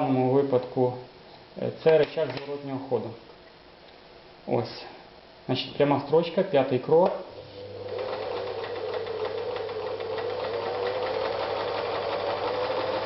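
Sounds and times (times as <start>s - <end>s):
electric sewing machine running: 7.6s - 13.0s.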